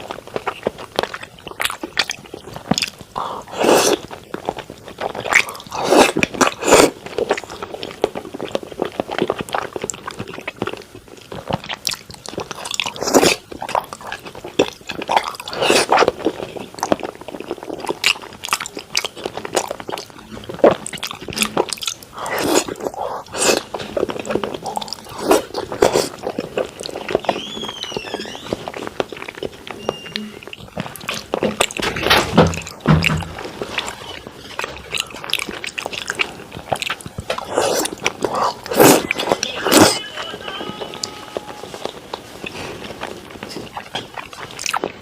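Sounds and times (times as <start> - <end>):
chewing raw fish: 0.0 - 45.0.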